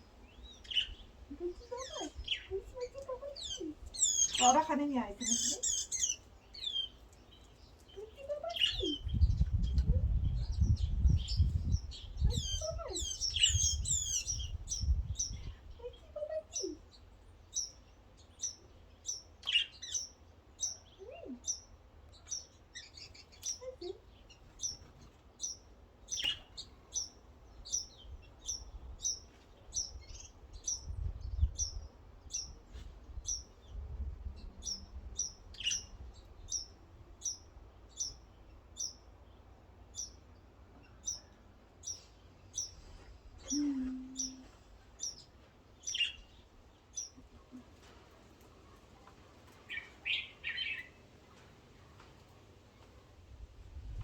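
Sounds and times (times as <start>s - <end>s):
small birds chirping: 0.0s - 54.0s
low rumble on microphone: 9.0s - 15.8s.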